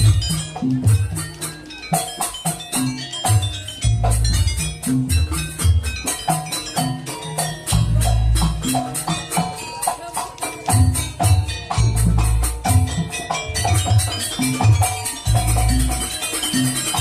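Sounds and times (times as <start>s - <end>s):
deep drum or gong beats: 0.0s - 1.2s
percussion strikes: 0.0s - 17.0s
ringing metallophone notes: 0.0s - 17.0s.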